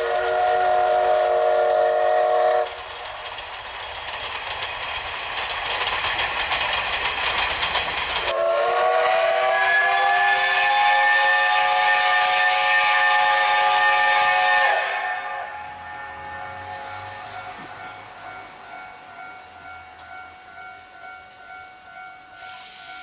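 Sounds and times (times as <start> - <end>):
steam locomotive whistle: 0.0 - 2.8, 8.3 - 19.6, 22.4 - 23.0
steam train rumble and rail clatter: 0.0 - 23.0.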